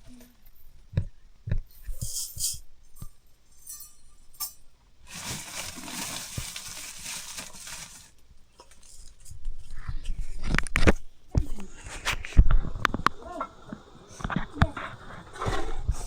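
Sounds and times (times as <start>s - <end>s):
metal pots clinking: 1.9s - 6.4s
steady hiss: 11.0s - 16.0s.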